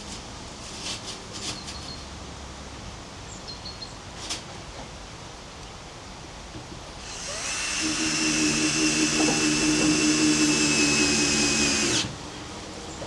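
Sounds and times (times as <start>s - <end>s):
small electric motor whining: 7.0s - 12.2s.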